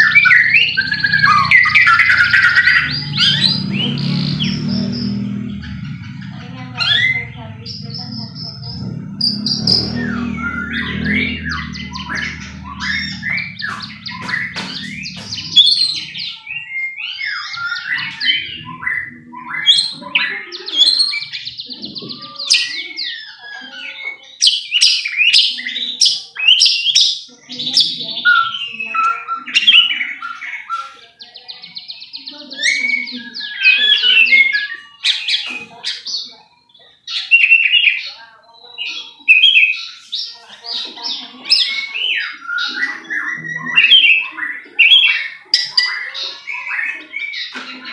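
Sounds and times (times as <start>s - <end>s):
low hum: 0.0s - 16.8s
bird singing whistles and trills: 0.0s - 47.9s.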